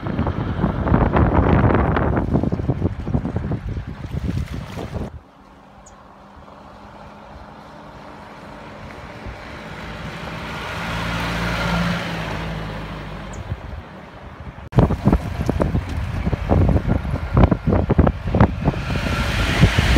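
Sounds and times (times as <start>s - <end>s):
diesel engine passing by: 5.1s - 19.9s.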